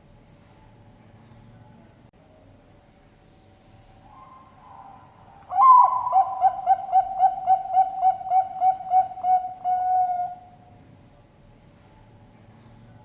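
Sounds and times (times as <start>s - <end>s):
dove cooing: 4.2s - 10.6s.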